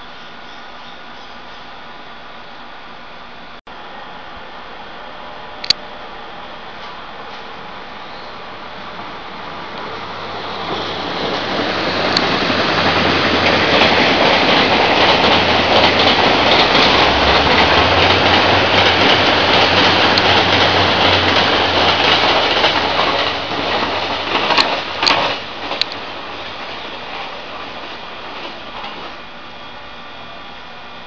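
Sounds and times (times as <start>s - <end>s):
train wheels rumbling on rail: 6.0s - 31.0s
clicks at rail joints: 13.4s - 26.0s.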